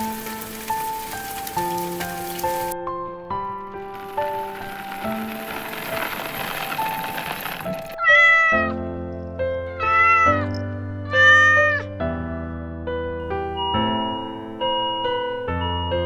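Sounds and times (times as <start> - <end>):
soft slow piano music: 0.0 - 16.0
cat meowing: 8.0 - 8.8, 9.7 - 11.9.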